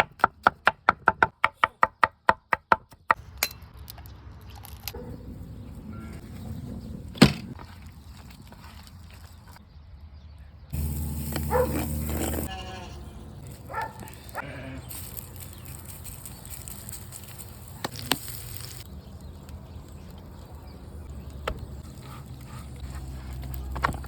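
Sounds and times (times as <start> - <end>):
livestock bleating: 12.4 - 13.2, 14.4 - 15.0.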